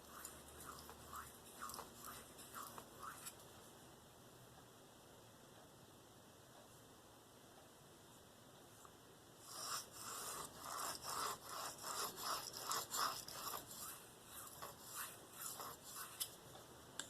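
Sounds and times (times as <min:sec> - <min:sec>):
knife rasping on sharpening stone: 0:00.0 - 0:03.4, 0:09.4 - 0:16.4.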